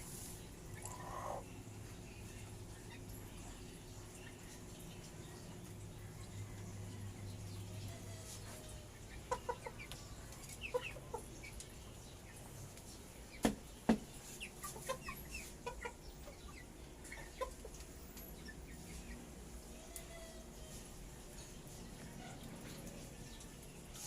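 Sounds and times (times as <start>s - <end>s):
chickens clucking softly: 0.7s - 1.5s, 7.7s - 19.2s.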